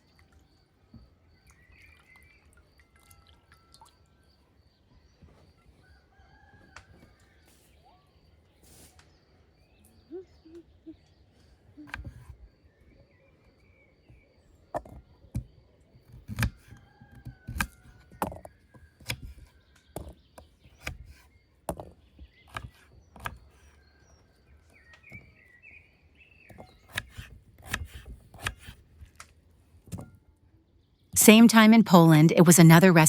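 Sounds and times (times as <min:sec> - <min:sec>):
faint bird calls: 0:04.4 - 0:15.3
knife chopping on wooden board: 0:26.5 - 0:28.8.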